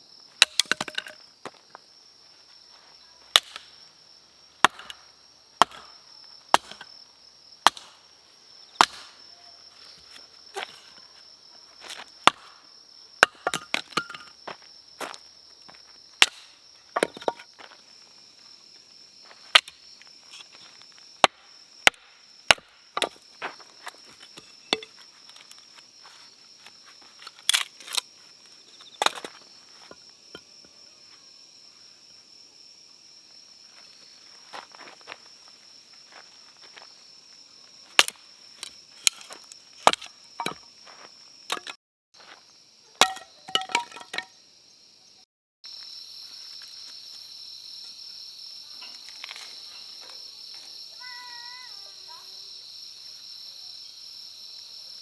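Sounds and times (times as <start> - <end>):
firewood cracking and knocking: 0.4 - 1.6, 3.4 - 3.7, 4.6 - 6.9, 7.6 - 8.0, 8.8 - 9.2, 11.9 - 12.6, 13.2 - 14.6, 16.2 - 17.7, 21.2 - 25.7, 37.9 - 41.8, 43.0 - 44.3.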